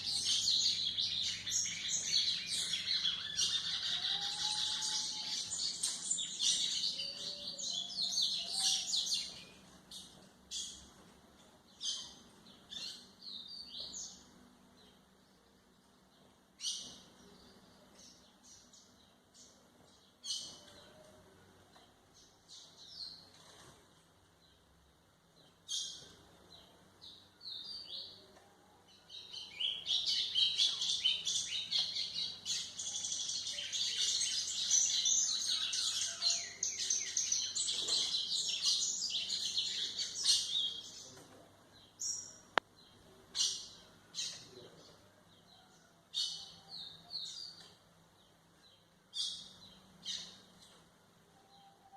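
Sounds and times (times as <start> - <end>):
bird chirping and twittering: 0.0 - 11.0, 16.6 - 21.1, 28.9 - 44.6, 48.6 - 50.8.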